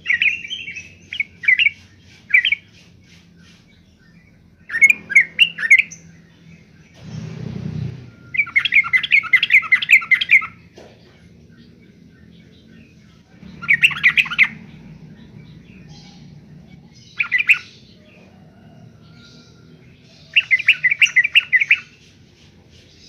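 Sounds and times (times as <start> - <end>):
bird singing bubbling notes: 13.4 - 17.7.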